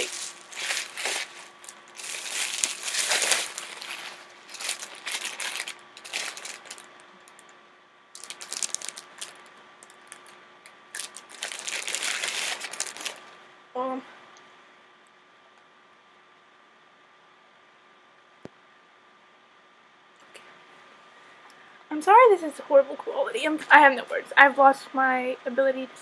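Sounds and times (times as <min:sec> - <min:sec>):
plastic packaging crinkling: 0:00.0 - 0:07.6, 0:08.2 - 0:13.4.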